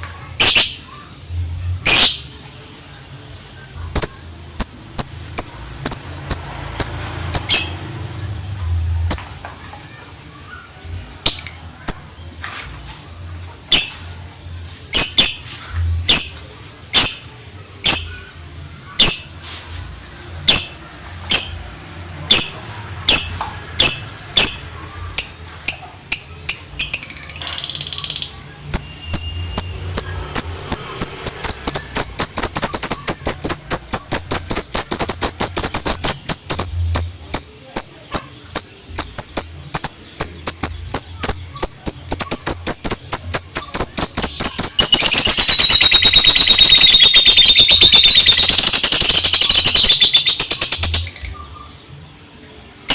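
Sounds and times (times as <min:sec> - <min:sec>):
lovebird ticking chirps: 0:25.2 - 0:51.4.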